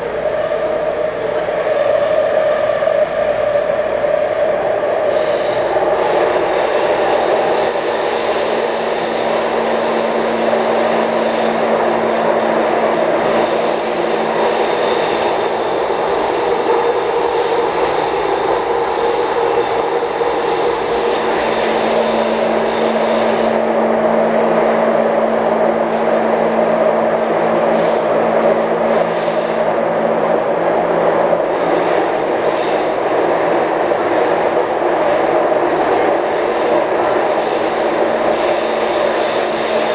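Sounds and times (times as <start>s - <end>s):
wheels rumbling on rail: 0.0s - 39.9s
high-pitched wheel squeal: 5.0s - 12.1s.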